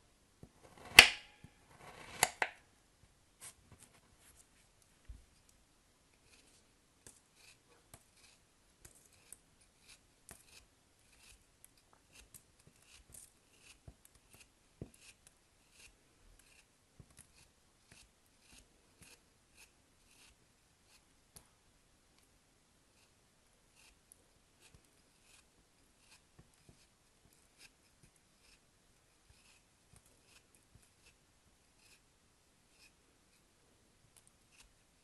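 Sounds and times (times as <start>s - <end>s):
blade snipping: 0.7s - 1.3s, 1.9s - 2.6s.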